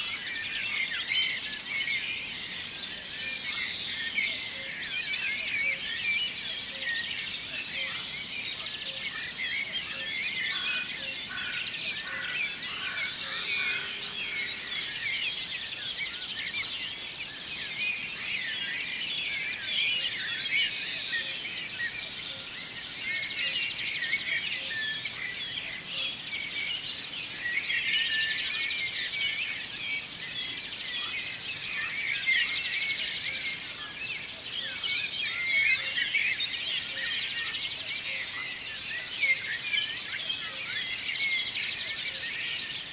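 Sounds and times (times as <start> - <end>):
songbirds chirping and trilling: 0.0 - 42.9.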